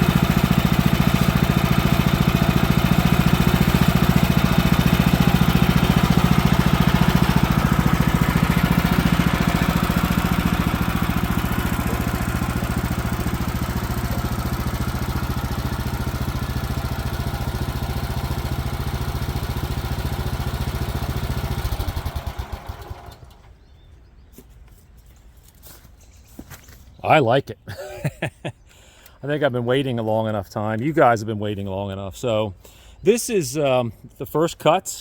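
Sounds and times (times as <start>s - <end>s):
gasoline engine running: 0.0s - 23.5s.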